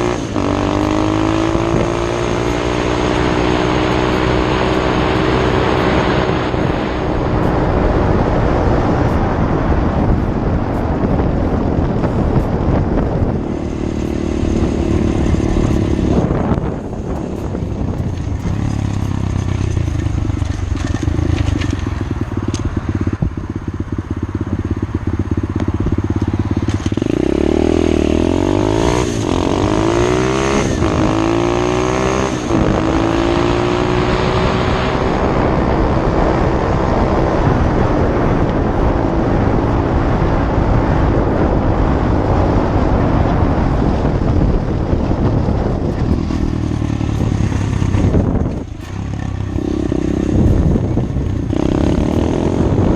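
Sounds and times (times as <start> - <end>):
motorbike engine accelerating: 0.0 - 52.9.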